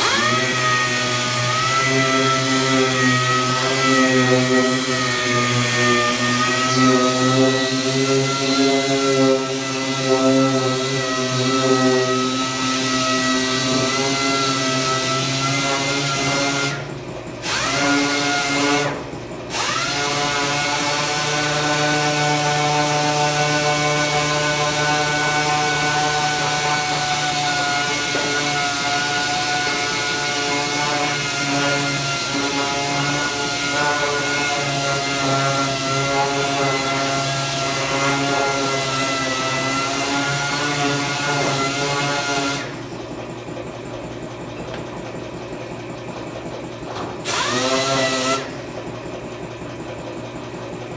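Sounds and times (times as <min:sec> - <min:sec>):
power tool motor running: 0:00.0 - 0:50.1.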